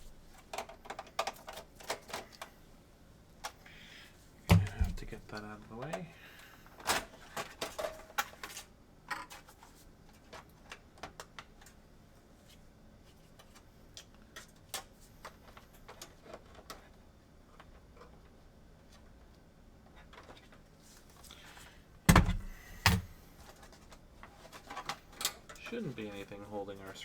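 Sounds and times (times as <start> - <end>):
plastic parts clicking and knocking: 0.4 - 2.5, 6.8 - 11.8, 13.4 - 19.0, 19.9 - 20.6, 22.1 - 25.8.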